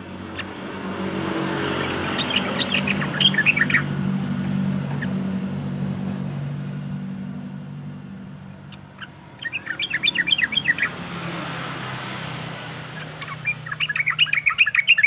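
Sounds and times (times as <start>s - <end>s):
bird singing chirpy notes: 0.0s - 15.0s.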